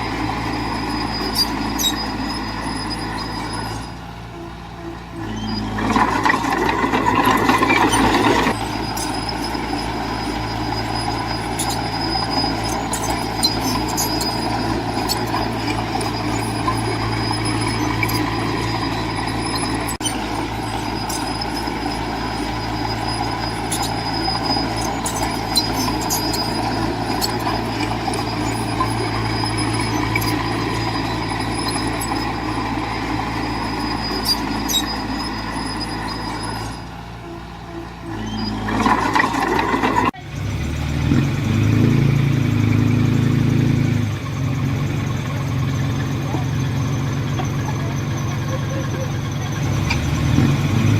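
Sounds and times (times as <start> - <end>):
heavy diesel machine running: 0.0 - 50.9.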